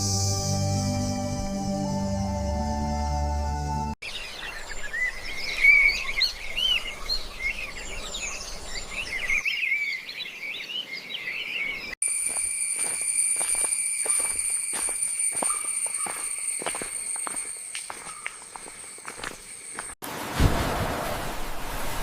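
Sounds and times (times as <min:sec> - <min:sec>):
small birds chirping: 0:04.0 - 0:20.0
high-pitched insect drone: 0:12.0 - 0:20.0.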